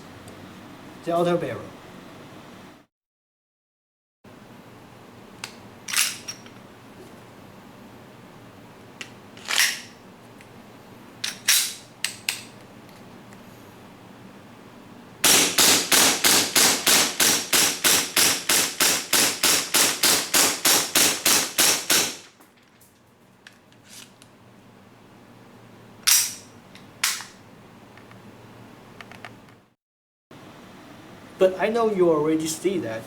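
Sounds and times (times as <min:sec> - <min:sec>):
airsoft pistol shots: 0:15.2 - 0:22.2.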